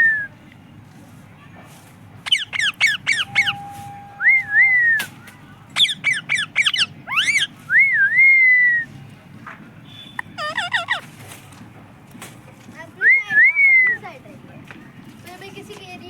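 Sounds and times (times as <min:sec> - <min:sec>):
parrot chirping: 0:02.2 - 0:05.0, 0:05.8 - 0:07.6, 0:10.2 - 0:11.1
parrot wavering whistles: 0:02.3 - 0:05.1, 0:05.8 - 0:08.8.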